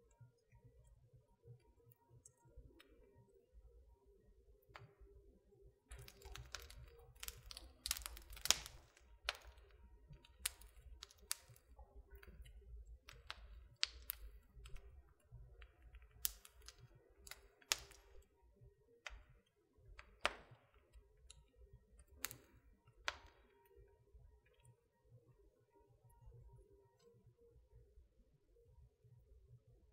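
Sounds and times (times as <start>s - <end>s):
wood fire crackling: 5.9s - 18.4s, 19.0s - 23.6s.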